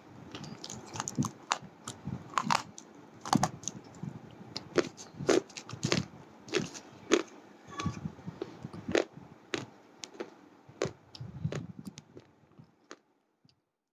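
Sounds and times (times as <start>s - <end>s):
crunching cracks of chewing: 0.3s - 4.0s, 4.6s - 7.4s, 8.9s - 13.1s
gritty chewing: 0.4s - 4.0s, 4.6s - 7.3s, 8.4s - 13.0s.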